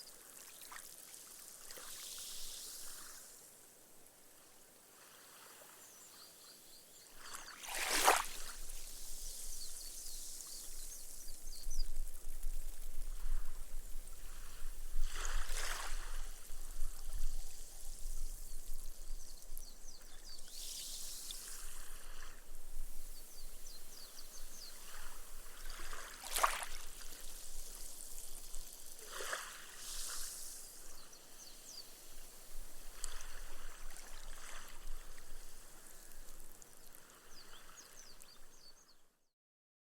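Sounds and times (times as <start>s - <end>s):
waves lapping on sand beach: 0.0s - 11.2s, 12.6s - 18.2s, 20.0s - 38.8s
foam fizzing hiss: 0.8s - 3.6s, 20.4s - 33.8s.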